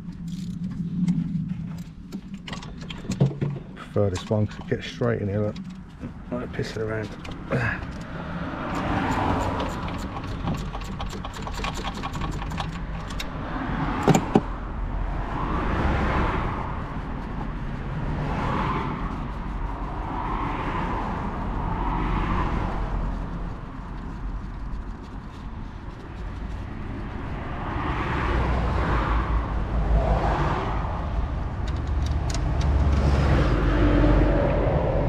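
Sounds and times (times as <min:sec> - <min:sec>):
road traffic passing: 0:00.0 - 0:35.0
ratchet wrench clicking: 0:08.7 - 0:13.4.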